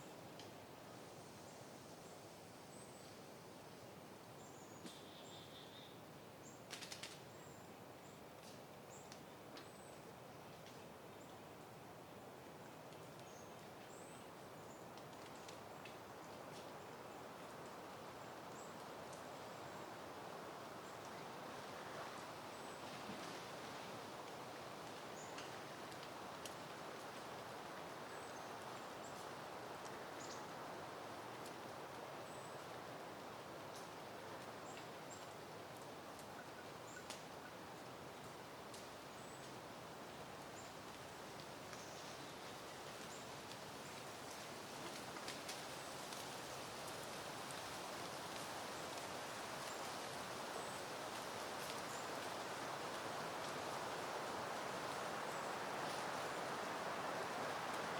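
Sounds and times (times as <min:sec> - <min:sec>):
wind rustling through plants: 0:00.0 - 0:57.9
faint bird chirps: 0:04.4 - 0:06.6.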